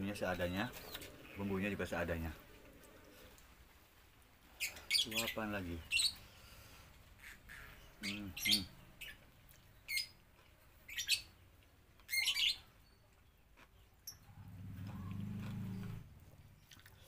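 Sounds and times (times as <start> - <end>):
bird chirps: 4.6 - 6.4, 7.2 - 10.2, 10.9 - 11.4, 12.1 - 16.7.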